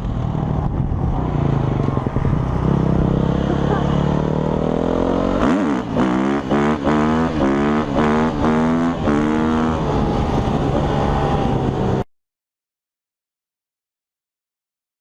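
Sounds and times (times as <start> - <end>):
motorcycle engine accelerating: 0.0 - 12.1.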